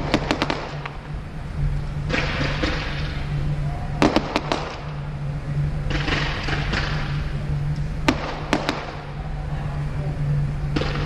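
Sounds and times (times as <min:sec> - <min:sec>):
fireworks bangs: 0:00.0 - 0:01.1, 0:02.0 - 0:05.1, 0:05.8 - 0:07.4, 0:08.0 - 0:09.3, 0:10.7 - 0:11.0
fireworks crackle: 0:00.0 - 0:09.6
steady low hum: 0:00.0 - 0:11.0.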